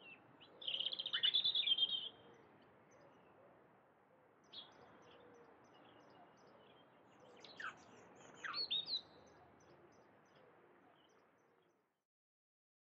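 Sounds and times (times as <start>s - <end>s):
soft outdoor hiss: 0.0s - 12.0s
songbirds chirping: 0.0s - 12.0s.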